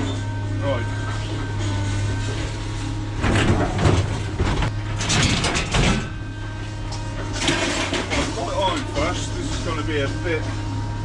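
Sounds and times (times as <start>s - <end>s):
clattering and scraping: 3.2s - 6.2s, 7.2s - 9.7s.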